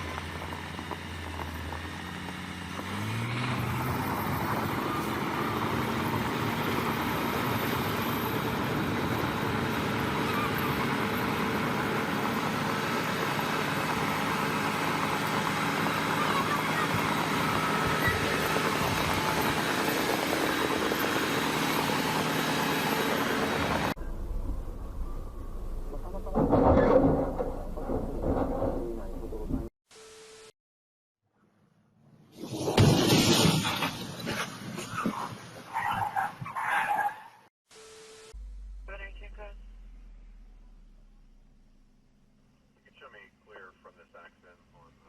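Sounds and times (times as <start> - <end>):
large engine running hard: 0.0 - 29.7, 38.4 - 42.6.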